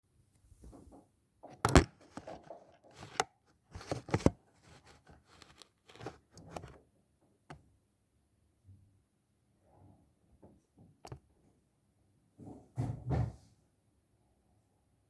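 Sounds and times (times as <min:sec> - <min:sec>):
rustling and crinkling: 0:00.4 - 0:06.8.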